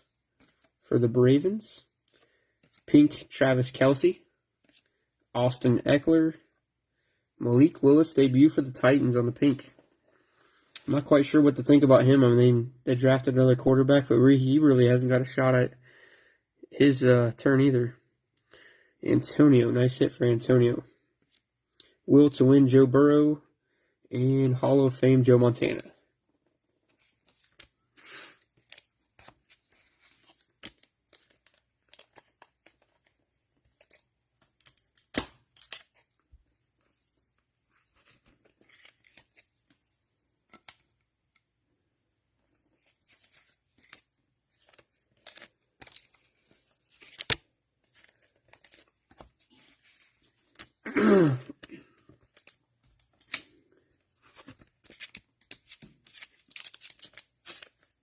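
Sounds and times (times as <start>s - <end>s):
cards clicking and rustling: 26.9s - 39.8s, 40.4s - 41.4s, 42.5s - 50.8s, 51.5s - 58.0s
cellophane tearing and crinkling: 54.8s - 57.9s.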